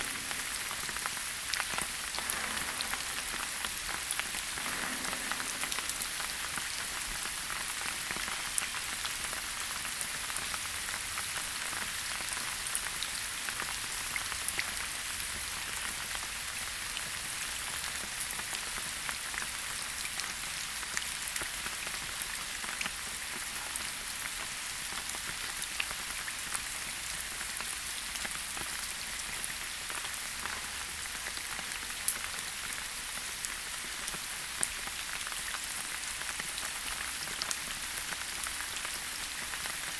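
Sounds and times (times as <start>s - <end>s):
steady rain hiss: 0.0s - 7.8s.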